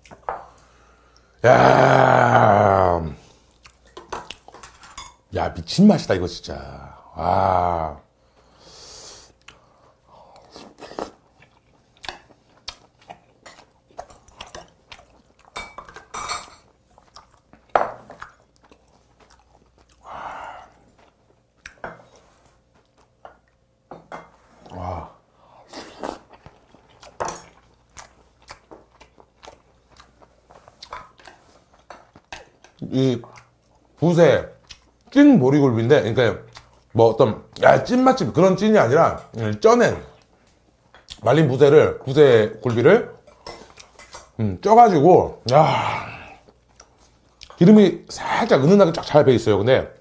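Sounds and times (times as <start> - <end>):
close-up chewing: 10.3 - 23.7, 25.6 - 34.0, 34.6 - 35.2.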